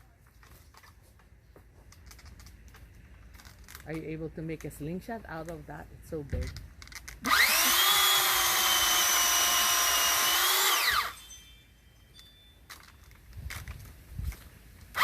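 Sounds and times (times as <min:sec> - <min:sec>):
pole saw motor whine: 0:07.2 - 0:12.5.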